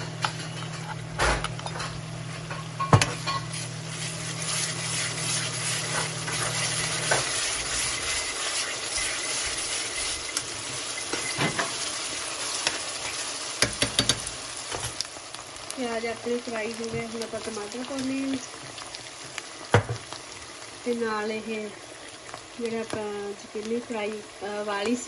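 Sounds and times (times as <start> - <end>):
onion sizzling in hot oil: 2.0 - 25.0
metal spoon knocking on pan: 13.6 - 14.3.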